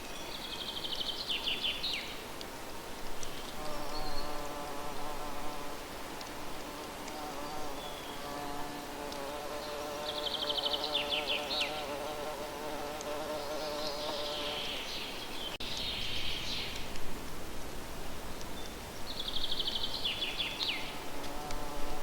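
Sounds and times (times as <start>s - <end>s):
small birds singing: 0.0s - 2.3s, 3.2s - 4.6s, 7.4s - 12.2s, 13.0s - 17.0s, 18.3s - 21.6s
flying insect buzzing: 3.5s - 14.9s, 21.0s - 22.0s.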